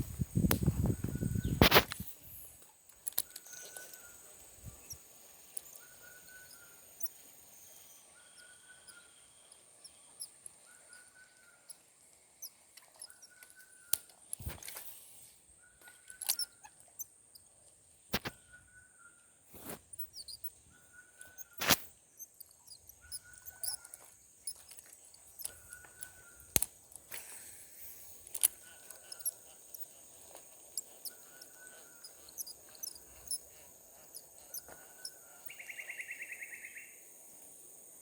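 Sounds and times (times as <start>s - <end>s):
high insect drone: 0.0s - 13.9s, 19.6s - 38.0s
sharp clicks: 0.4s - 2.1s, 2.9s - 4.1s, 18.1s - 18.4s, 21.2s - 35.6s.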